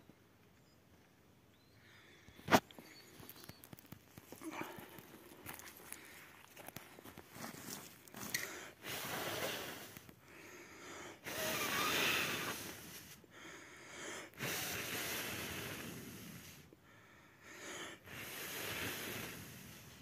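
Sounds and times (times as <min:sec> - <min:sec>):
noisy rushes of breath: 0:07.8 - 0:20.0.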